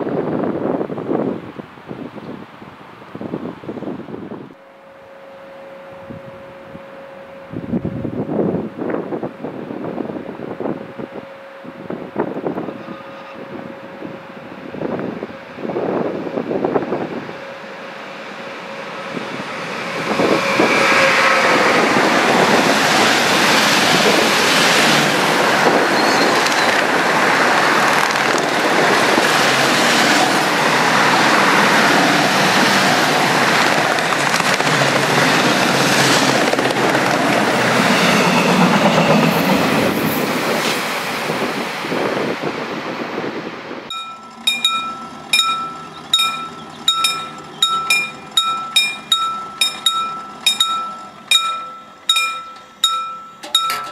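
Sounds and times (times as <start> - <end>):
train passing close by: 3.2 - 53.9
wheels clicking on rails: 19.5 - 40.8, 43.9 - 53.9.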